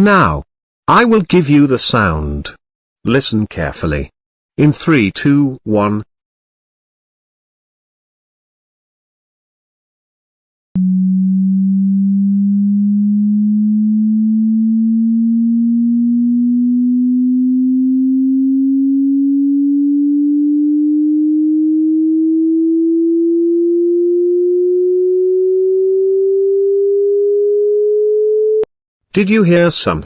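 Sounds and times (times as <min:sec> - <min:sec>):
rising sine tone: 0:10.8 - 0:28.7.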